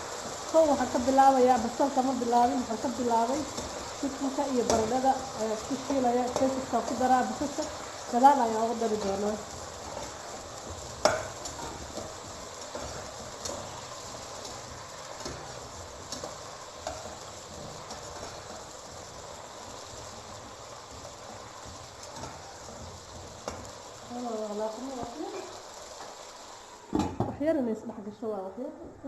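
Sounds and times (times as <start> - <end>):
food sizzling in oil: 0.0 - 28.5
utensil clicking against pan: 8.9 - 13.7.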